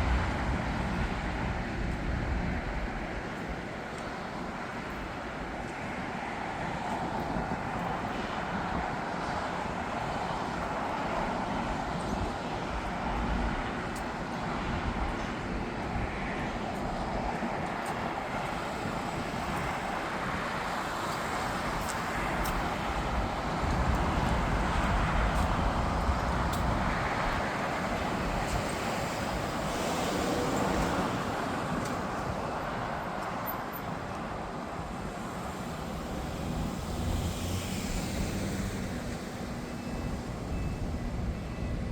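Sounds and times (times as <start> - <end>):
jet engines roaring: 16.3 - 40.7.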